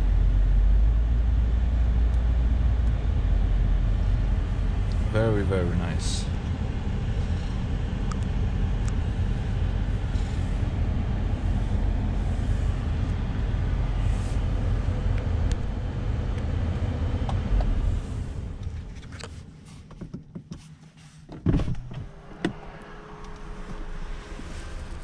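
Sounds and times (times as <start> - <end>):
car engine idling: 0.0 - 20.2
car door opening thump: 21.3 - 22.6.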